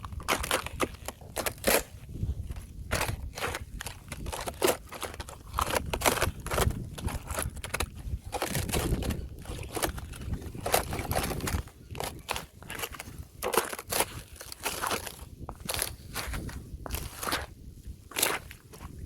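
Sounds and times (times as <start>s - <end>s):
thin ice cracking: 0.0s - 2.0s, 2.6s - 17.5s, 18.1s - 19.0s.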